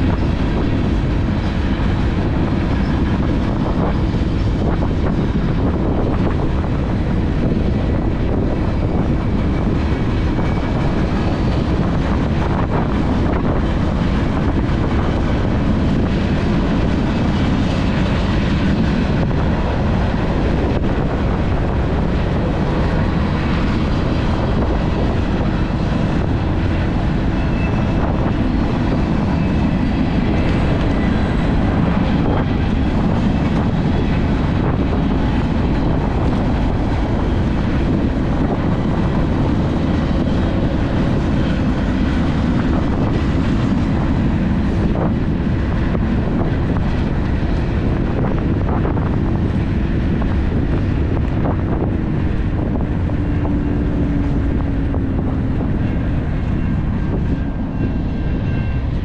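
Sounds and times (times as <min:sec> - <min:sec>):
train rumbling: 0:00.0 - 0:59.0
wind rushing over microphone: 0:00.0 - 0:59.0.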